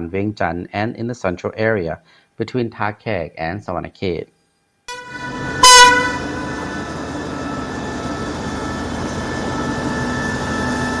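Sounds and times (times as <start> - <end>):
train horn blast: 4.9 - 7.0
train rumbling on rails: 4.9 - 11.0.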